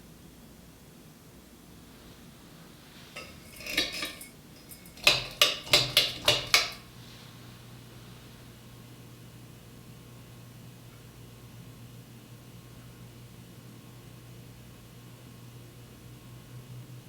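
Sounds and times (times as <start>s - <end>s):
ceiling fan motor hum: 1.7s - 17.0s
pull chain rattling and clicking: 3.2s - 6.8s.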